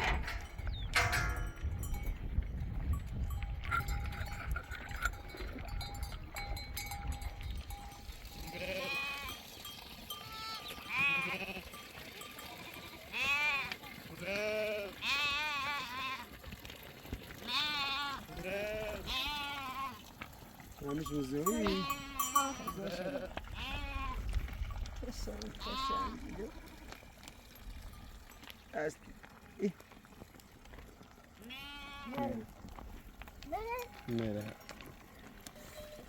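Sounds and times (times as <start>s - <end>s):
sheep bleating: 8.3s - 16.4s, 17.4s - 20.1s, 21.4s - 24.2s, 25.5s - 27.0s, 31.4s - 32.5s.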